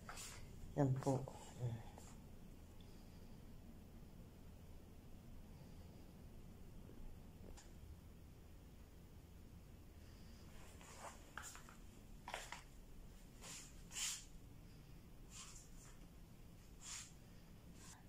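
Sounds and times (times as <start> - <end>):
soft rustling: 0.0 - 2.3, 10.0 - 18.0.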